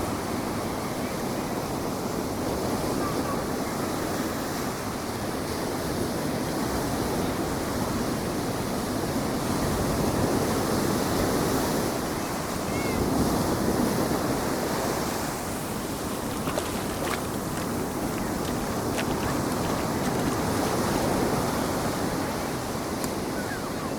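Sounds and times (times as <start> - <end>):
ocean surf breaking: 11.7 - 23.9.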